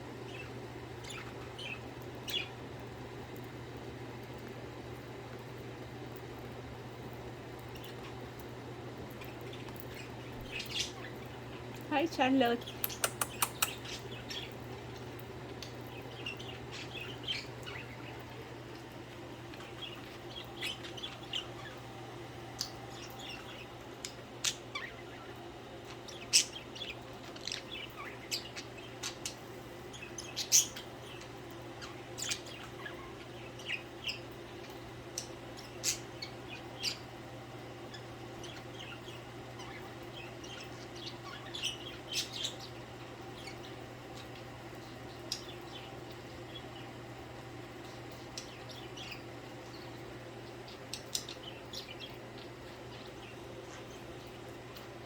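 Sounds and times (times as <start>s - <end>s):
steady low hum: 0.0s - 55.0s
budgerigars chirping: 9.9s - 11.4s, 19.5s - 21.8s, 26.0s - 34.3s, 37.9s - 42.8s.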